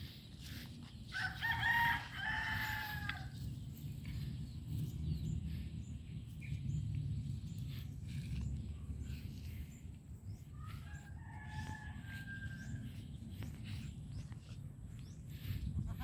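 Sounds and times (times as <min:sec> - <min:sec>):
rooster crowing: 0:01.1 - 0:03.4, 0:10.8 - 0:12.8
low rumble: 0:02.0 - 0:16.0.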